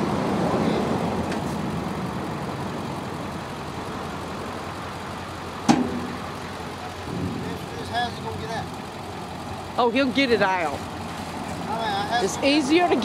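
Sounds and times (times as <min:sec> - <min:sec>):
car engine at low revs: 0:00.0 - 0:13.0
sharp knock: 0:05.7 - 0:06.2.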